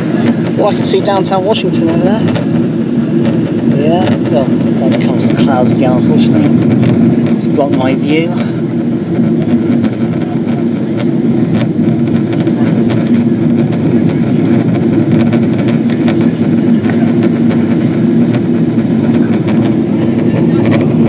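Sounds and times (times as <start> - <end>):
aircraft cabin engine rumble: 0.0 - 21.0.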